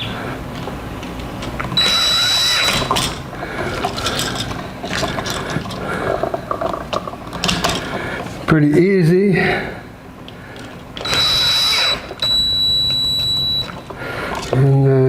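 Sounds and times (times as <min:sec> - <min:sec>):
whirring with high whine: 0:00.0 - 0:06.5, 0:10.7 - 0:14.7
tool clicks and rattles: 0:00.6 - 0:08.0, 0:10.6 - 0:14.7.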